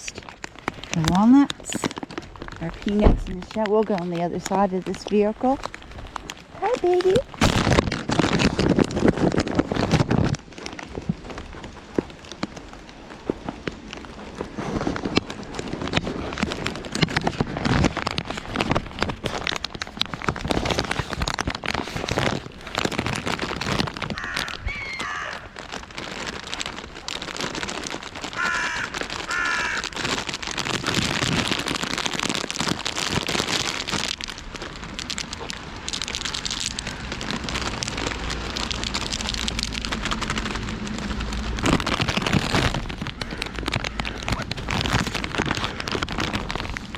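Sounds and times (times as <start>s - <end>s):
rain pattering: 0.0s - 46.9s
crows cawing: 24.2s - 25.6s, 28.3s - 30.0s, 43.1s - 44.4s.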